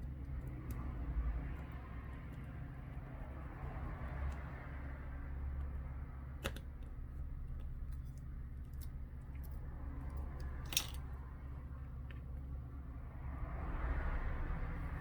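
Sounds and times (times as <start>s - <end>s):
phone parts clicking and tapping: 6.4s - 7.0s, 10.4s - 11.1s.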